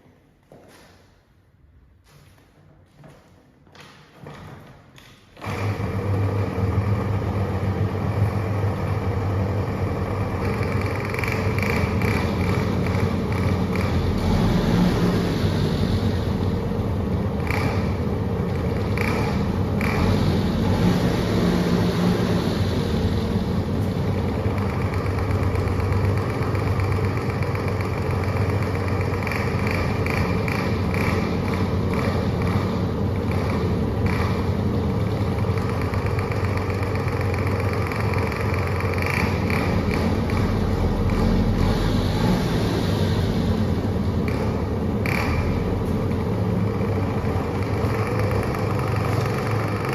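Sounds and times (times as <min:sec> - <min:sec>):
scooter engine running: 0:05.4 - 0:49.9.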